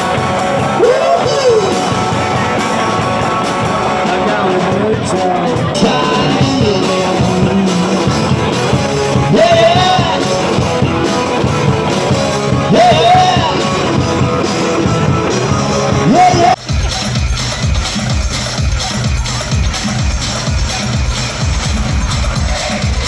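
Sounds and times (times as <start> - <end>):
person singing long sliding notes: 0.0 - 16.6
live rock band playing: 0.0 - 23.0.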